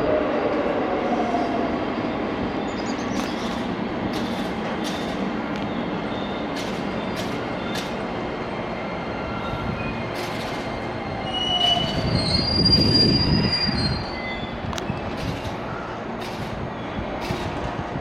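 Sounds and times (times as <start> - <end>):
train running noise: 0.0 - 18.0
wheel squeal: 9.3 - 15.9.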